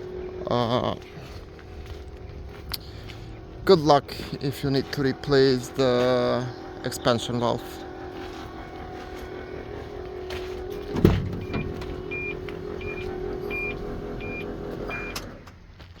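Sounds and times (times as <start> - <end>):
truck engine humming: 0.0 - 16.0
thump: 10.9 - 11.7.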